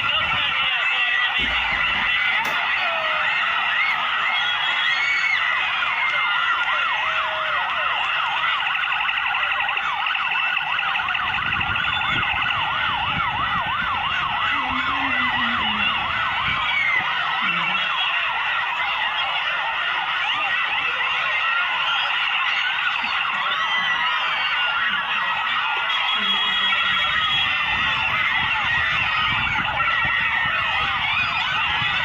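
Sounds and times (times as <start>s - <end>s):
vehicle sirens yelping: 0.0s - 32.0s.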